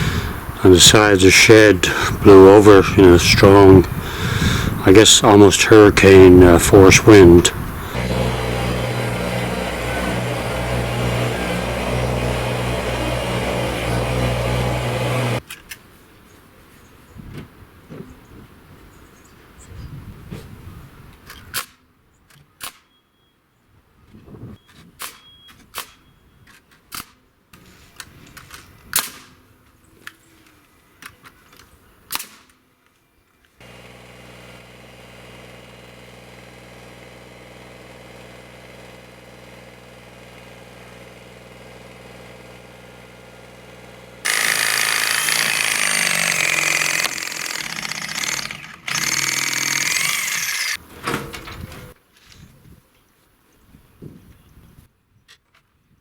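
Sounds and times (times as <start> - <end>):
diesel tractor engine idling: 0.0 - 15.4
harsh engine noise with whines: 0.0 - 15.4.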